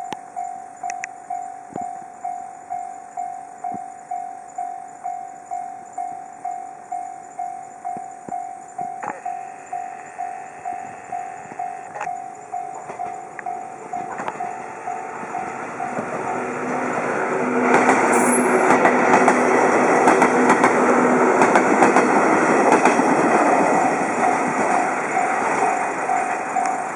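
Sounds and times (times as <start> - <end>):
level-crossing warning bell: 0.0 - 26.9
train wheels clicking on rail joints: 5.0 - 26.9
train motor drone: 8.8 - 26.9.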